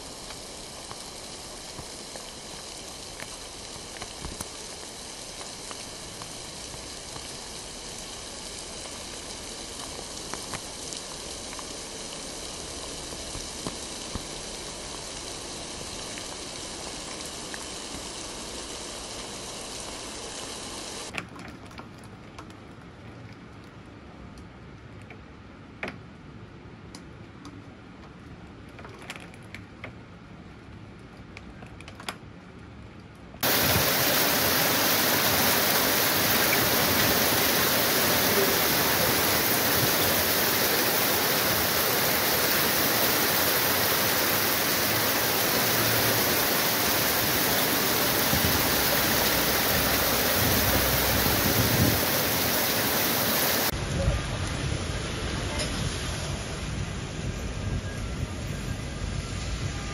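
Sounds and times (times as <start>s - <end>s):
heavy storm downpour: 0.0s - 21.1s, 33.4s - 59.9s
faint rain with taps: 0.0s - 59.9s.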